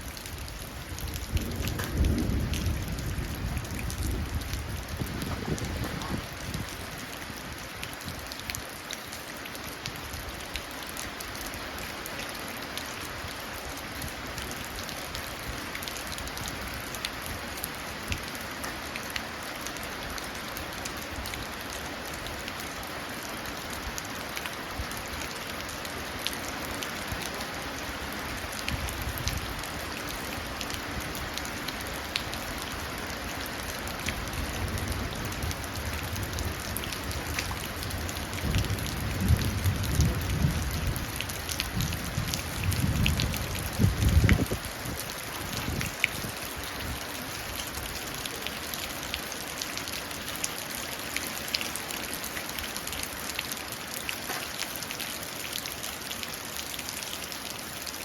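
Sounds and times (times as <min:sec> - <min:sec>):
rain pattering into puddle: 0:00.0 - 0:58.0
distant thunder rumble: 0:01.3 - 0:06.4.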